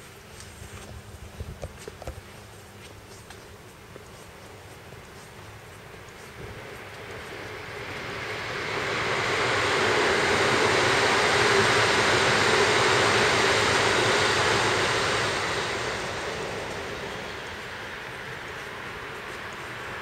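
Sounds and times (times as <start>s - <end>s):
steady hum: 0.0s - 20.0s
electric train passing overhead: 4.7s - 20.0s.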